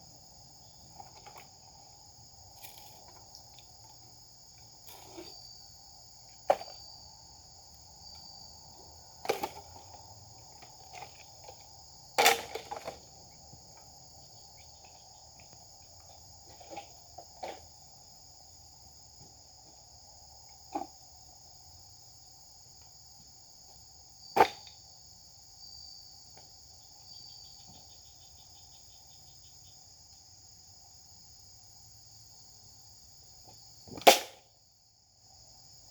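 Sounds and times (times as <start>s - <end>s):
insects trilling: 0.0s - 35.9s.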